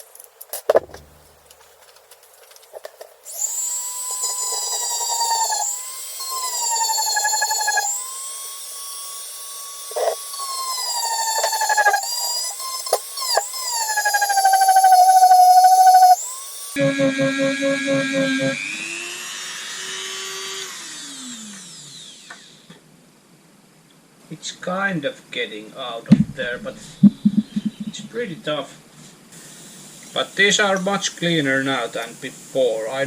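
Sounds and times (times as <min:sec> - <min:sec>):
power drill whine: 0:03.3 - 0:22.8.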